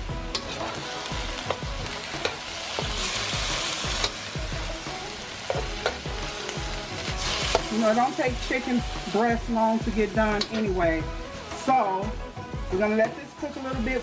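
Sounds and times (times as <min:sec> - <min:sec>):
food sizzling in a wok: 0:00.0 - 0:14.0
spatula scraping a pan: 0:07.1 - 0:09.1.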